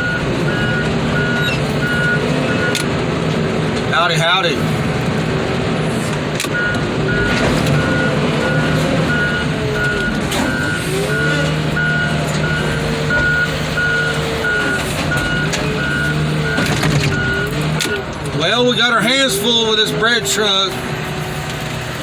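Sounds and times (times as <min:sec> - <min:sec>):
back-up alarm beeping: 0:00.0 - 0:02.8, 0:06.5 - 0:18.0
heavy engine revving: 0:00.0 - 0:22.0.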